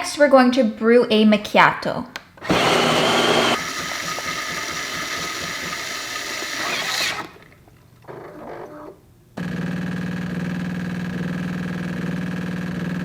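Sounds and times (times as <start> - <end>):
coffee grinder grinding beans: 2.4 - 7.5.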